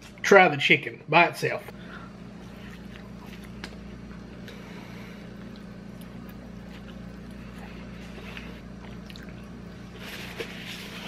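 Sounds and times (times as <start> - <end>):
steady low hum: 0.0 - 11.0
person chewing wet clicks: 2.4 - 4.6, 5.2 - 9.9.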